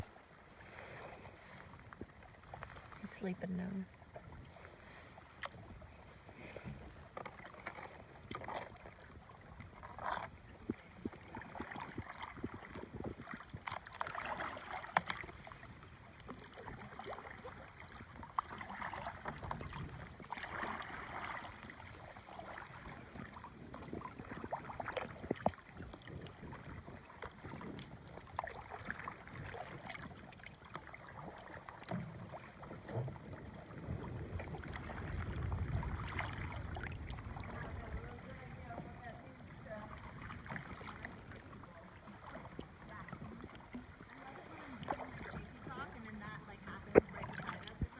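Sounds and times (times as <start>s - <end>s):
paddle strokes splashing: 0.0s - 47.9s
low rumble: 33.9s - 39.3s.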